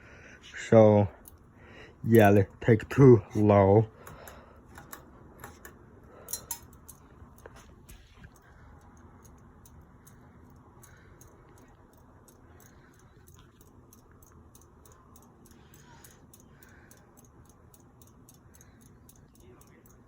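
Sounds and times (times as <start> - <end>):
ceiling fan motor hum: 0.0 - 20.0
light regular ticking: 1.1 - 20.0.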